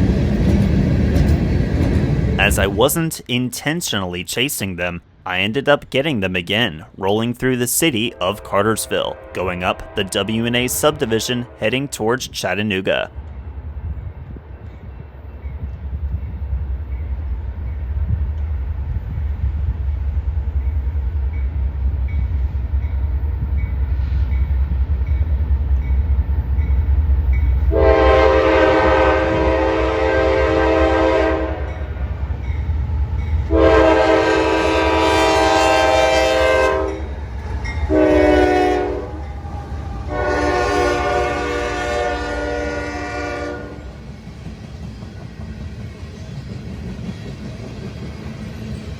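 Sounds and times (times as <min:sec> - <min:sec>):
locomotive rumble: 0:00.0 - 0:03.2, 0:07.8 - 0:48.9
train air horn: 0:08.1 - 0:11.9, 0:27.7 - 0:31.8, 0:33.5 - 0:43.9.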